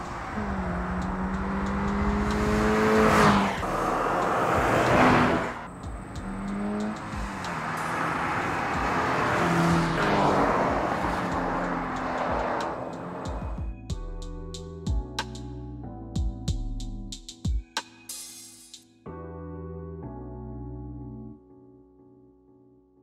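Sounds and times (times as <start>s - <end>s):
car engine running hard: 0.0s - 13.6s
tyre noise: 0.0s - 13.6s.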